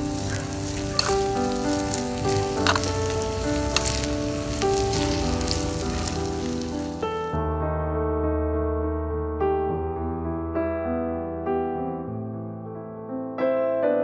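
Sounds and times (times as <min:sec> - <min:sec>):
meat and peppers sizzling: 0:00.0 - 0:07.2
background music: 0:00.0 - 0:14.0
utensil clicking in pot: 0:00.3 - 0:05.5.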